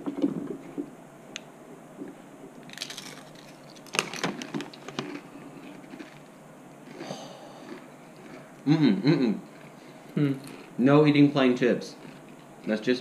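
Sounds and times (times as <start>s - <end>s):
chips crunching while chewed: 2.6s - 8.6s, 9.4s - 9.8s, 10.4s - 12.9s.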